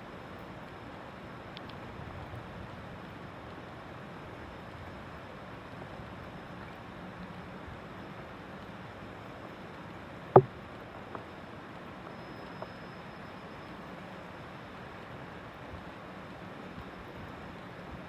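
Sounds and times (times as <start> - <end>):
faint ticks: 1.5 - 5.1, 8.0 - 14.1.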